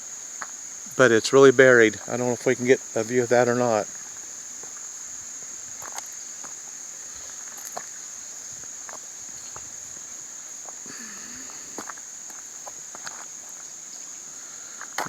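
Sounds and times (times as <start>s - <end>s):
insect chorus trilling: 0.0s - 15.0s.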